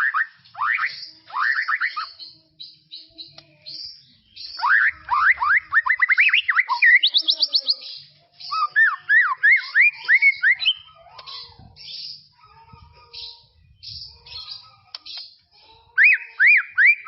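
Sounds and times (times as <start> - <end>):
bird singing whistled notes: 0.0 - 10.9, 16.0 - 17.0.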